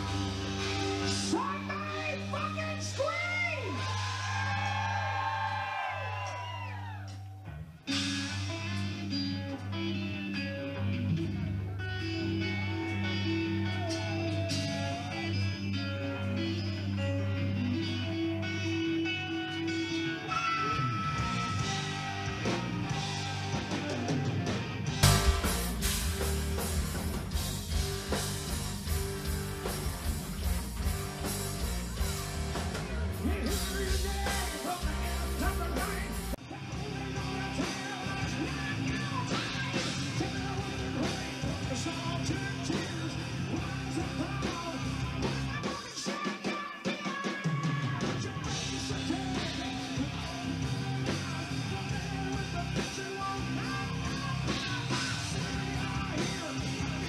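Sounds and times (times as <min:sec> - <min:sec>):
live rock band playing: 0:00.0 - 0:05.1, 0:07.5 - 0:57.0
drums: 0:00.0 - 0:57.0
electric guitar: 0:00.0 - 0:57.0
person singing: 0:32.8 - 0:57.0.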